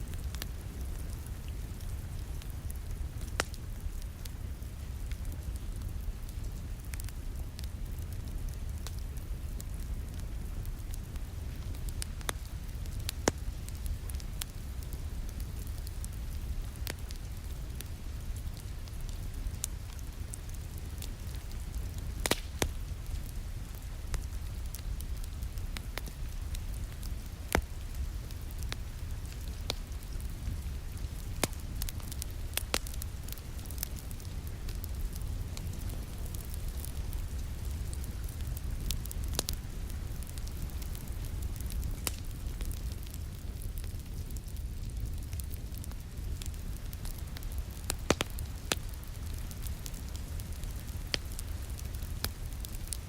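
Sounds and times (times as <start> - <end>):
rain hissing on a window: 0.0 - 53.0
wood fire crackling and popping: 0.0 - 53.0.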